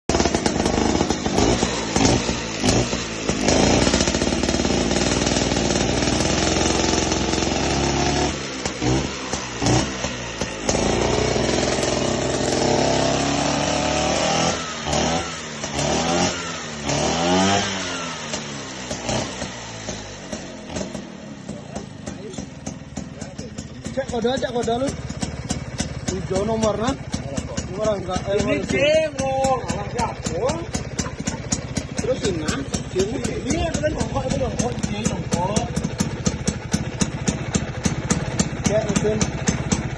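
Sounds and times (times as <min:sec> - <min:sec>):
scooter engine revving: 0:00.0 - 0:39.9.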